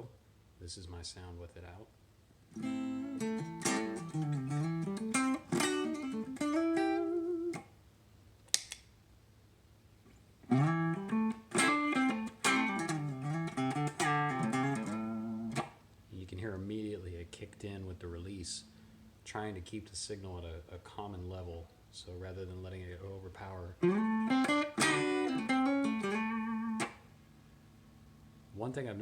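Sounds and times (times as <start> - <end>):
clean electric guitar playing: 2.5 - 7.6, 10.4 - 15.7, 23.8 - 27.0
single click: 8.5 - 8.9.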